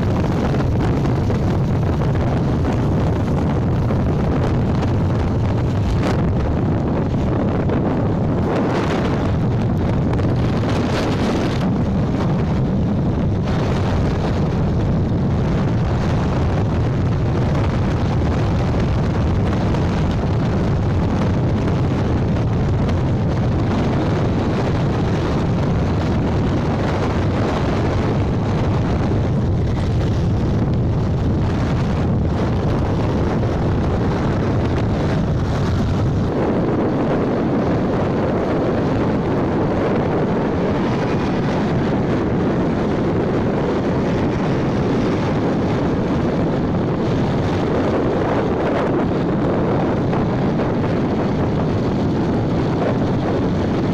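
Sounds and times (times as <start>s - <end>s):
motorbike and road noise: 0.0s - 53.9s
wind buffeting microphone: 0.0s - 53.9s.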